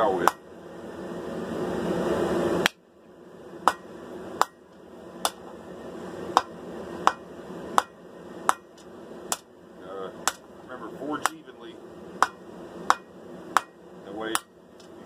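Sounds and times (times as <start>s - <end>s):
hammer striking steel on anvil: 0.2s - 0.4s, 3.6s - 4.6s, 5.2s - 5.5s, 6.4s - 9.5s, 10.2s - 10.5s, 11.2s - 11.5s, 12.2s - 14.5s.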